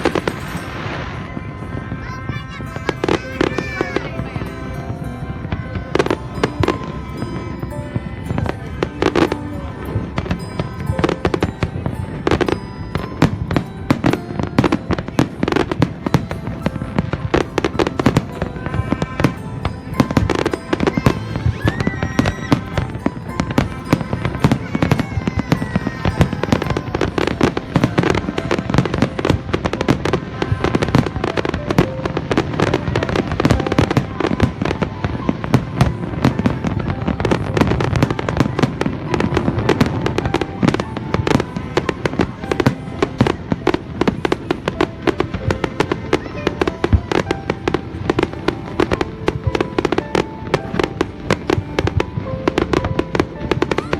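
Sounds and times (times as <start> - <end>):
fireworks and firecrackers banging: 0.0 - 53.9
music: 0.0 - 53.9.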